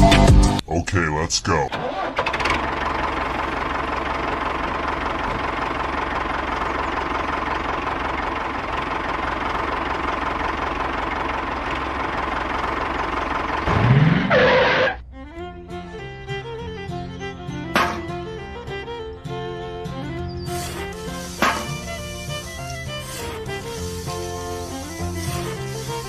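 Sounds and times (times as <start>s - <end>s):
small engine running: 2.0s - 26.0s
engine knocking: 2.1s - 14.9s
steady whine: 13.0s - 20.0s.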